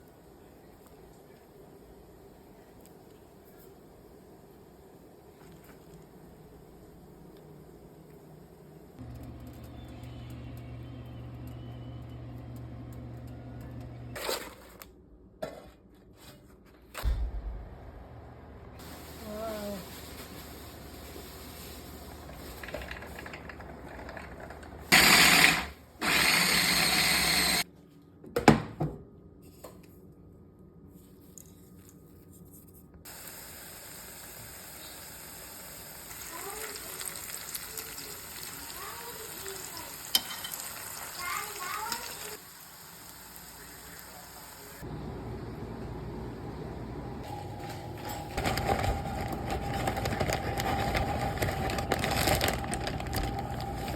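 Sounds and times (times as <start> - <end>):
appliance electric motor hum: 9.0 - 14.2, 22.0 - 27.6, 41.0 - 53.9
food sizzling in hot oil: 33.1 - 44.8.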